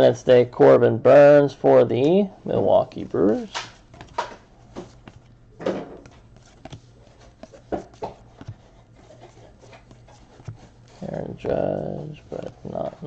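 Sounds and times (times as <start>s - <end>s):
steady low hum: 0.0s - 13.0s
cards clicking and rustling: 3.2s - 13.0s.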